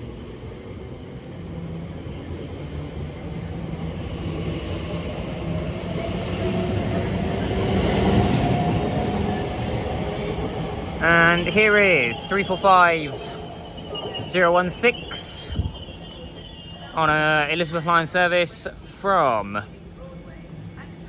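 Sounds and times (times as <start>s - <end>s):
electric train rumbling past: 0.0s - 21.0s
train motor hum: 3.2s - 17.0s.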